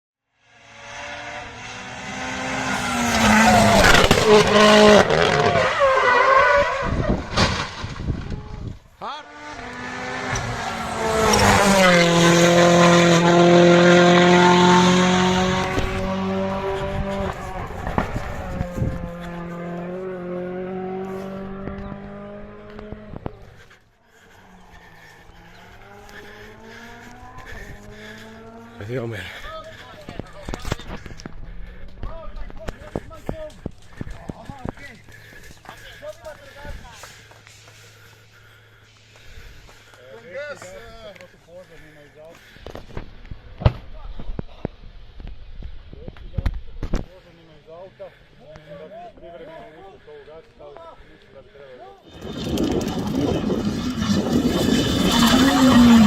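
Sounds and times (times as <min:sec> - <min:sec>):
rally car engine revving: 0:00.5 - 0:23.6, 0:24.6 - 0:29.4, 0:52.1 - 0:56.0.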